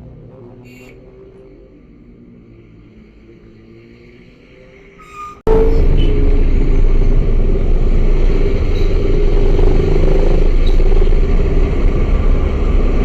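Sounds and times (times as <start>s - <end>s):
motorcycle engine drone: 5.5s - 13.0s
wind rumble on microphone: 5.6s - 13.0s.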